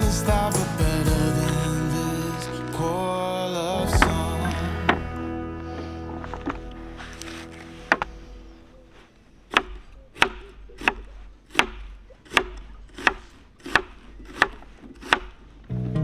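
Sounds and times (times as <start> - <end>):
chopping wood: 9.5 - 15.4.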